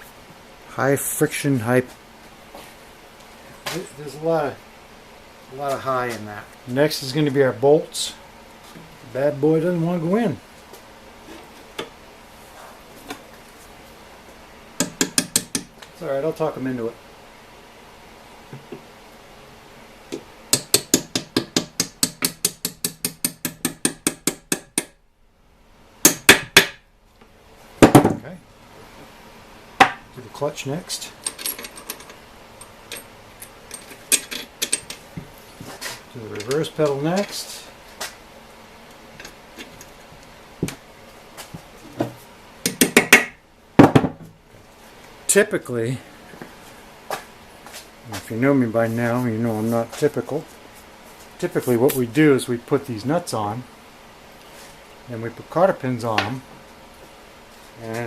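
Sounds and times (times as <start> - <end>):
rapid hammer taps on metal: 14.8 - 15.7, 20.1 - 25.0
metal parts clanking: 31.2 - 35.0.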